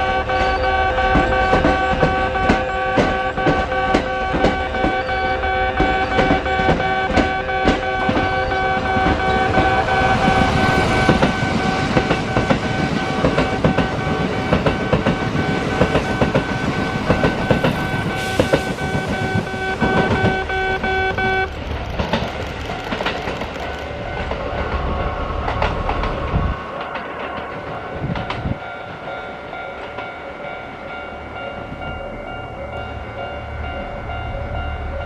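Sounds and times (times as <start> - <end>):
train rumble: 0.0 - 35.0
train wheels clacking over rail joints: 0.4 - 30.1
steady multi-pitch tone: 4.6 - 21.8.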